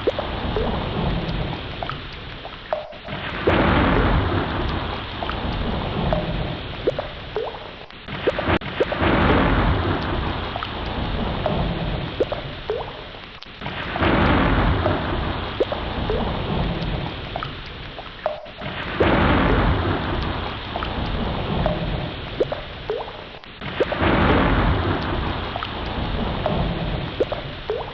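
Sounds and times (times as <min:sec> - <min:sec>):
ocean waves washing in: 0:00.0 - 0:27.9.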